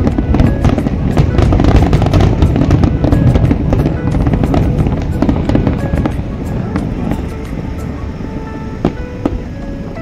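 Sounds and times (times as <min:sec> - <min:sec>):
continuous rumble: 0:00.0 - 0:10.0
fireworks bangs and crackles: 0:00.0 - 0:10.0
music playing: 0:00.0 - 0:10.0.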